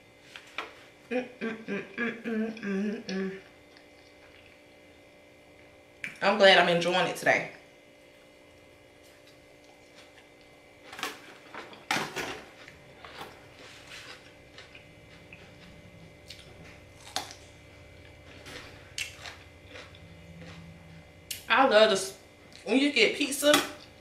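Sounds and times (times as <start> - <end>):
chewing and crunching salad: 3.4 - 5.8, 8.4 - 22.7.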